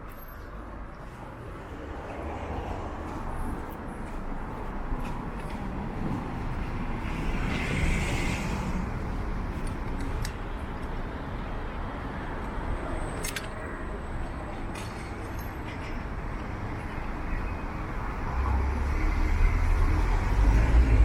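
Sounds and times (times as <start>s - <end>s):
street traffic: 0.0s - 21.0s
vehicle passing with hiss: 7.0s - 9.1s.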